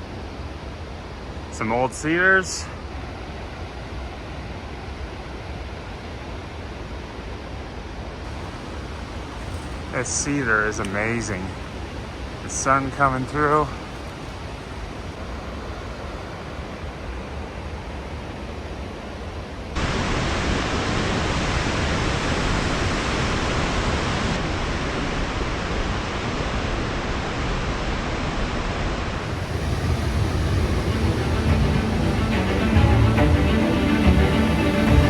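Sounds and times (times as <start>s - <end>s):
waterfall rushing: 8.3s - 26.6s, 29.1s - 35.0s.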